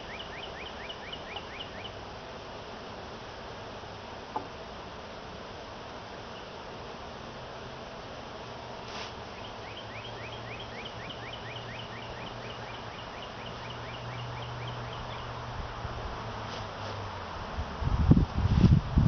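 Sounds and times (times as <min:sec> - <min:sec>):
bird chirping rapidly: 0:00.0 - 0:02.0, 0:09.3 - 0:15.4.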